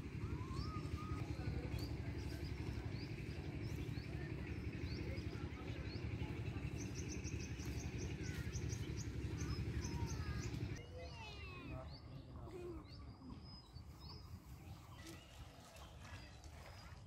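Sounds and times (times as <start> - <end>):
steady low rumble: 0.0 - 10.8
small birds chirping: 0.0 - 17.0.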